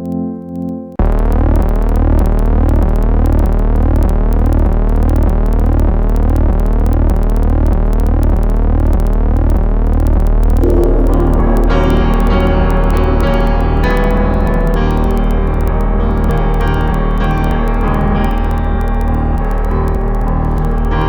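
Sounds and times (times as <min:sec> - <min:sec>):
piano music: 0:00.0 - 0:01.0, 0:10.6 - 0:21.0
synthesizer drone with pitch sweeps: 0:10.6 - 0:21.0.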